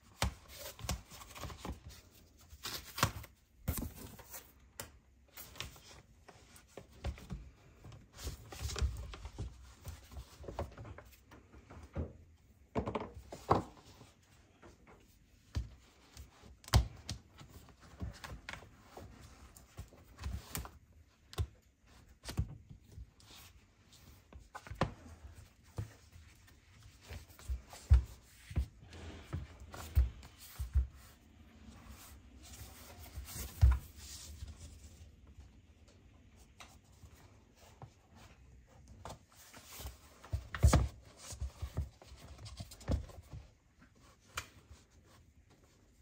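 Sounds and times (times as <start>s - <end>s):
objects tapping and knocking: 11.4s - 13.8s.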